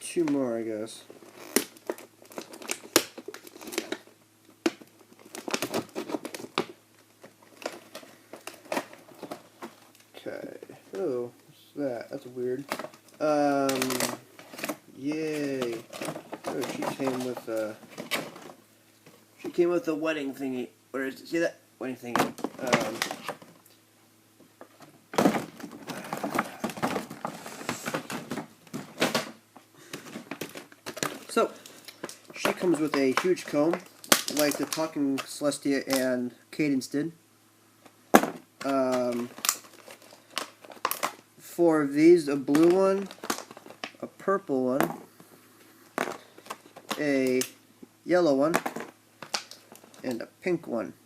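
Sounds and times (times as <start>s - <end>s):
packaging crinkling and tearing: 1.2s - 10.1s, 12.6s - 18.6s, 22.3s - 23.7s, 25.2s - 29.3s, 29.9s - 36.1s, 38.2s - 41.3s, 42.4s - 44.1s, 48.5s - 50.2s.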